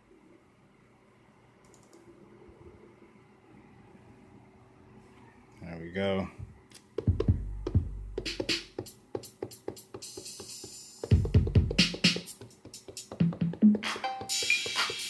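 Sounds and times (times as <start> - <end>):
drum machine hits: 7.0 - 15.0
deep kick drums: 7.1 - 8.4, 11.1 - 12.0.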